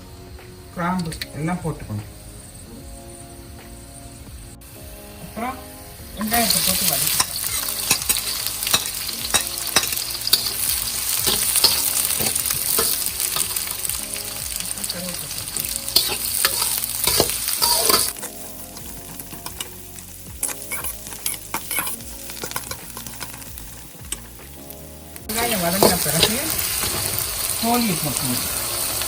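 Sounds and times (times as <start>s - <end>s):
onions sizzling in hot oil: 6.1s - 29.0s.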